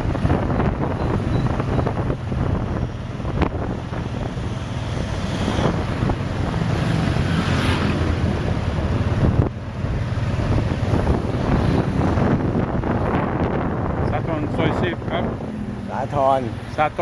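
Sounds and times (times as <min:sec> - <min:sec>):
motorbike engine hum: 0:00.0 - 0:17.0
street traffic: 0:00.0 - 0:17.0
wind buffeting microphone: 0:00.0 - 0:17.0.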